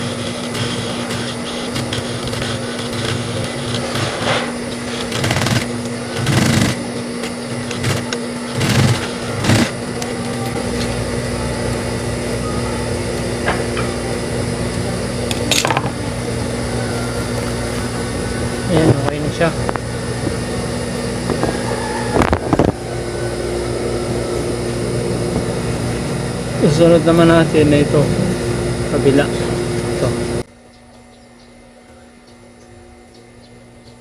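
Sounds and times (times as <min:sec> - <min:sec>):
sewing machine stitching: 0:00.0 - 0:09.8.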